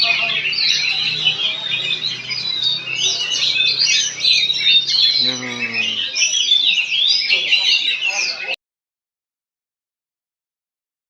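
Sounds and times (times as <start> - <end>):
low falling bird call: 0.0 - 7.8
songbird chirping and trilling: 0.0 - 8.6.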